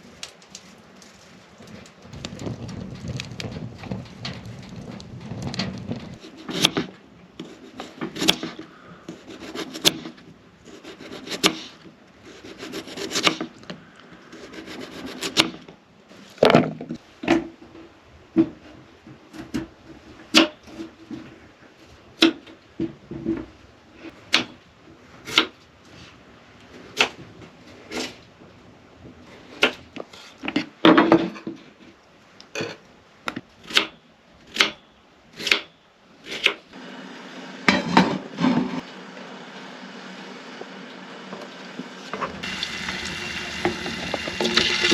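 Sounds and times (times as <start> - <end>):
wood rubbing or scraping: 1.0 - 17.0, 42.0 - 44.9
wooden knocks and clacks: 2.1 - 6.9.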